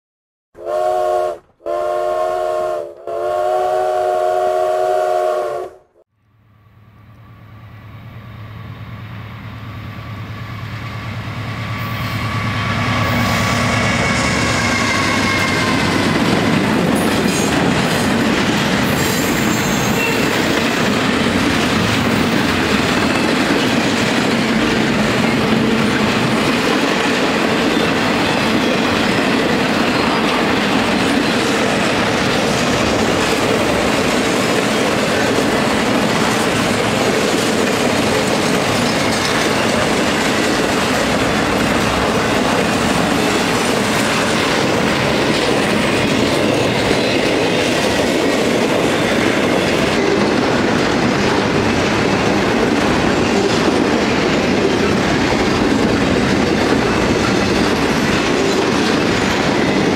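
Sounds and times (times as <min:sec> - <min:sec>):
train horn: 0:00.6 - 0:06.0, 0:11.8 - 0:16.0, 0:19.0 - 0:20.5
diesel locomotive engine rumble: 0:06.5 - 0:59.9
freight cars clickety-clack: 0:12.8 - 0:59.9.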